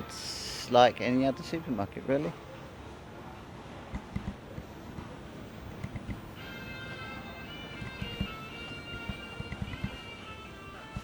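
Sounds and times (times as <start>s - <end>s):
supermarket hubbub: 0.0s - 11.0s.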